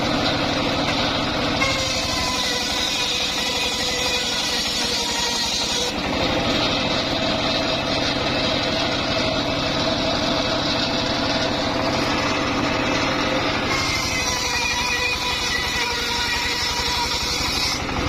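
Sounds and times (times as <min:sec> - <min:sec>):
engine-driven wood saw running: 0:00.0 - 0:18.0.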